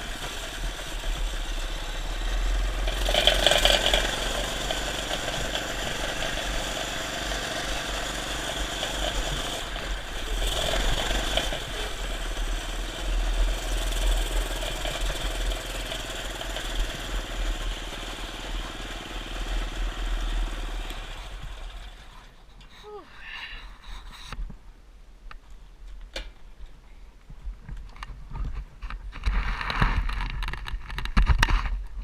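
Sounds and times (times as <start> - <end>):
minibike engine running: 0.0 - 22.4.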